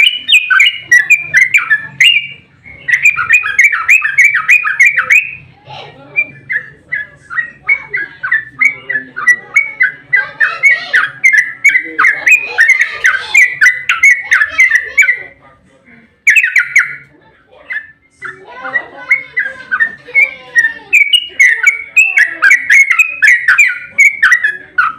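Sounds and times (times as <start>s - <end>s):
bird chattering song: 0.0s - 15.4s, 16.2s - 24.9s.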